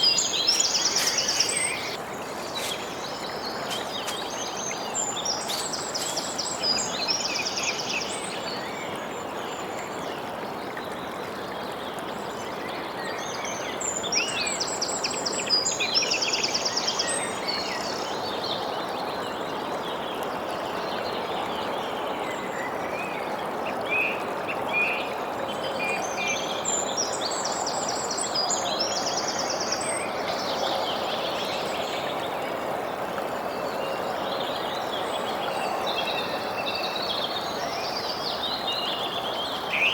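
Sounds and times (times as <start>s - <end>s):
songbird trilling: 0.0s - 7.2s.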